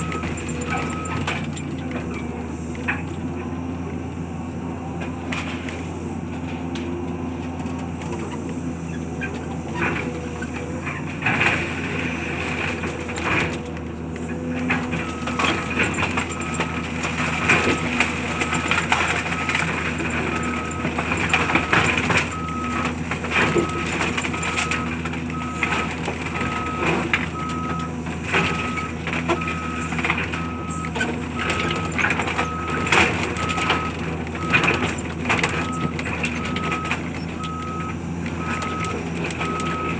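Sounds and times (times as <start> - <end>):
reversing alarm beeping: 0.0 - 1.3, 15.0 - 39.9
heavy machinery engine running: 0.0 - 39.9.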